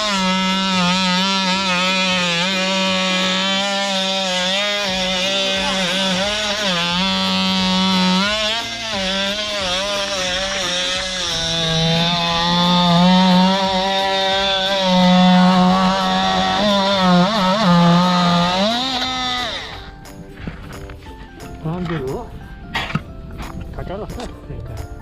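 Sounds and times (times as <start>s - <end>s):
oscillating tool sawing wood: 0.0s - 20.0s.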